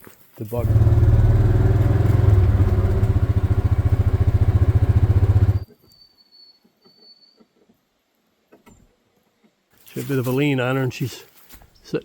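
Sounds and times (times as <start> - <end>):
small vehicle engine idling: 0.6 - 5.7.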